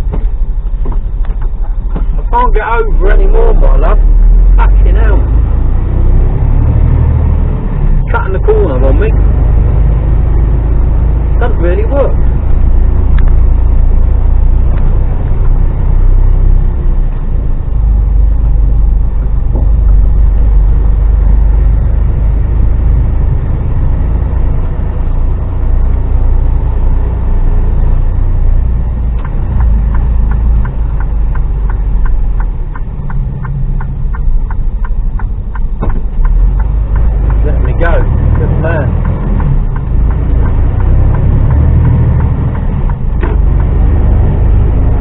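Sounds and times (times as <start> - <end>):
road noise inside cab: 0.0 - 45.0
truck diesel engine droning: 0.0 - 45.0
regular clicking: 29.1 - 45.0.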